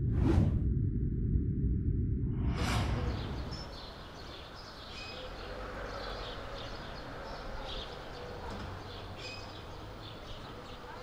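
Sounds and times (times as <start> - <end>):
low city hum: 0.0 - 11.0
small birds chirping: 3.1 - 11.0.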